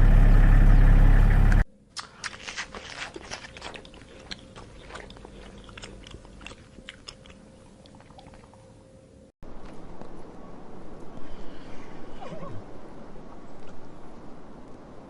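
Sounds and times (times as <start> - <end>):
faint steady hum: 0.0 - 15.0
animal chewing and crunching food: 0.4 - 10.4.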